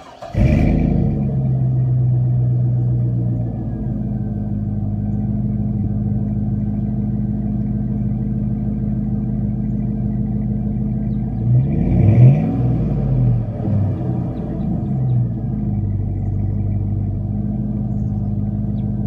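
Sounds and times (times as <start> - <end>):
car engine idling: 0.0 - 19.0
engine revving: 0.0 - 19.0.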